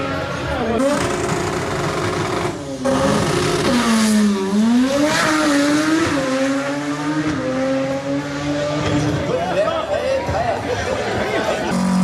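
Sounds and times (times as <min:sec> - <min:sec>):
drag car engine running loud: 0:11.7 - 0:12.0.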